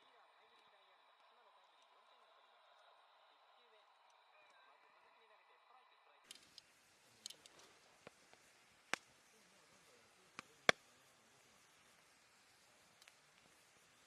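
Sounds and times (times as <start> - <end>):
campfire crackling and popping: 6.3 - 14.0.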